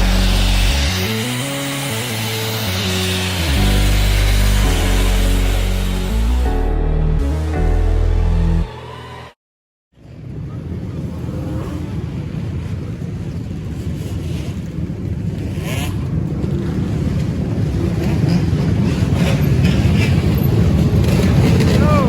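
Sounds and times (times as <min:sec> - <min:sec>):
motorcycle engine rumble: 0:00.0 - 0:07.2, 0:10.1 - 0:22.0
wind rushing over microphone: 0:10.0 - 0:22.0.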